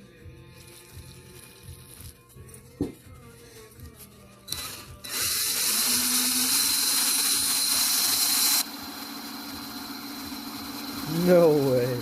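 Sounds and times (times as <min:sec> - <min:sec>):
drill motor hum: 0:04.5 - 0:12.0.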